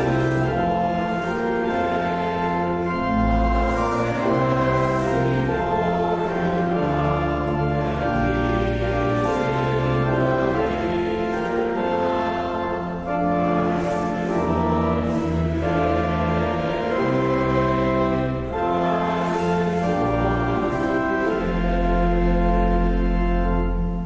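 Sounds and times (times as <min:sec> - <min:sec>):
slow hymn chords: 0:00.0 - 0:24.0.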